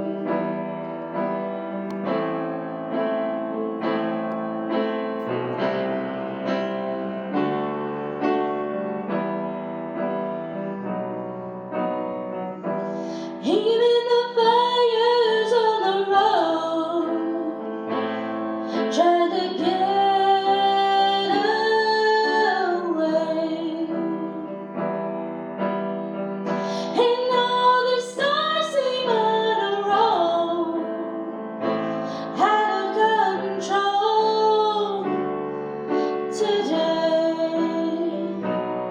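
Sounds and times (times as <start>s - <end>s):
woman singing a ballad: 0.0s - 0.6s, 12.9s - 17.9s, 18.6s - 24.9s, 26.5s - 38.9s
piano accompaniment: 0.0s - 38.9s.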